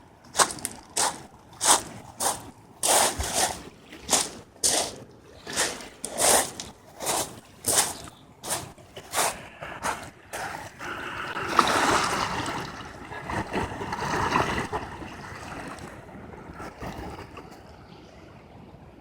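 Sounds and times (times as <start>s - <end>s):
footsteps on trail: 0.4s - 10.6s
river water rushing: 10.8s - 16.8s.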